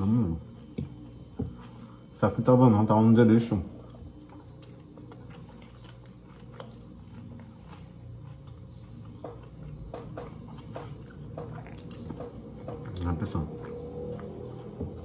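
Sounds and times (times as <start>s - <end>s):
wet chewing and lip-smacking: 3.8s - 15.0s.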